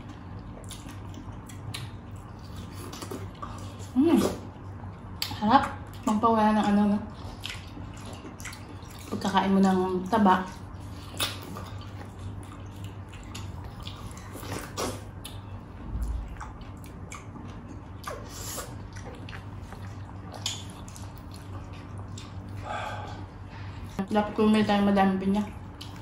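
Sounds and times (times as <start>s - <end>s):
faint low hum: 0.0s - 26.0s
wet smacking chewing: 5.2s - 9.8s, 10.6s - 23.3s.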